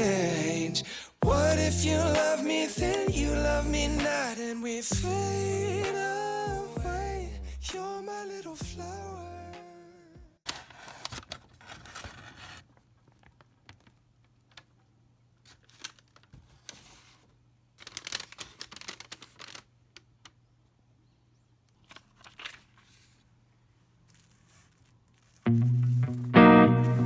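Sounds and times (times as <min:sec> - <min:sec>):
packaging rustling and tearing: 0:10.5 - 0:14.8, 0:15.4 - 0:20.4, 0:21.8 - 0:23.3, 0:24.0 - 0:25.6.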